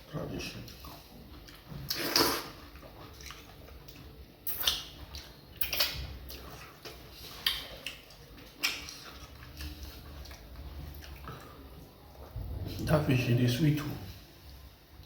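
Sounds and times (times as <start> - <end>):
wet eating smacks and slurps: 0.6 - 11.6.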